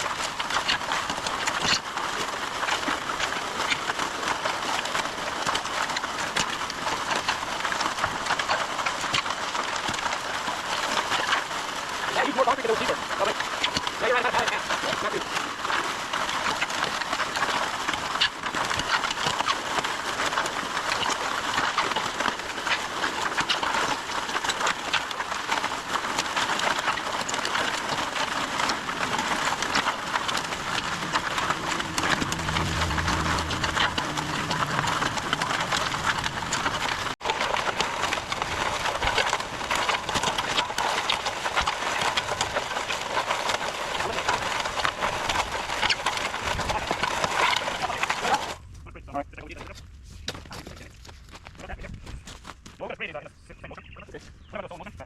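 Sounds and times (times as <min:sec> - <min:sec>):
concrete mixer rattling: 0:00.0 - 0:48.6
short low hum: 0:28.8 - 0:37.2.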